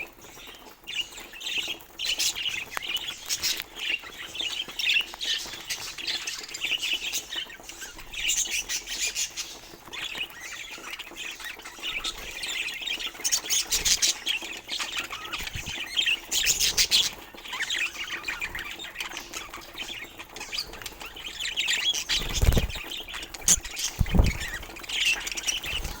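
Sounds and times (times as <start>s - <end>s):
budgerigars chattering: 1.0s - 26.0s
soft thumps: 23.5s - 24.7s.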